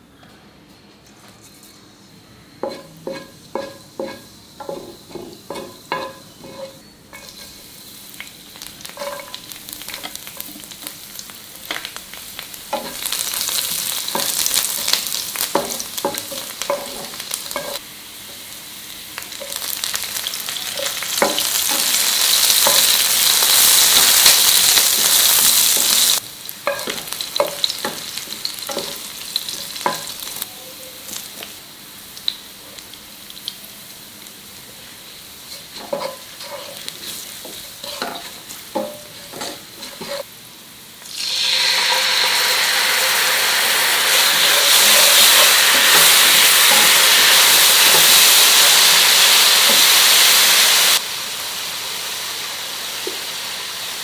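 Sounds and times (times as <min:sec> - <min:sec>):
wooden spatula tapping a pan: 0:02.6 - 0:07.3
food sizzling in hot oil: 0:02.6 - 0:54.0.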